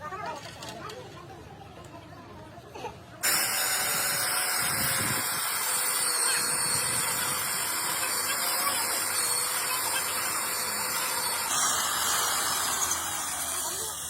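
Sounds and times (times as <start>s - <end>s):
loud steady hiss: 3.2s - 14.0s.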